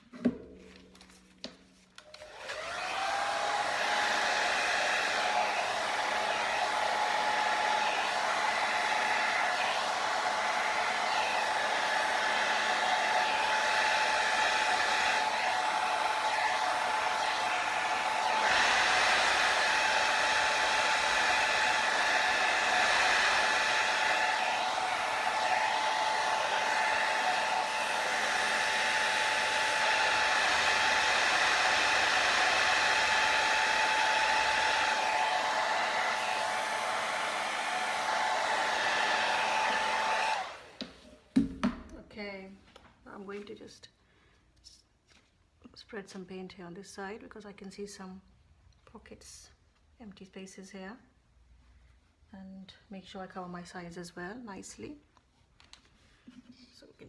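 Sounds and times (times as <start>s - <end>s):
hair dryer running: 2.0s - 41.9s.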